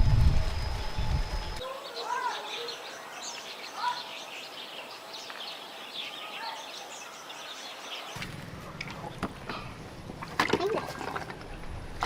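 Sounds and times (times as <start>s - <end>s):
low rumble: 0.0s - 1.6s
small birds chirping: 0.5s - 10.2s.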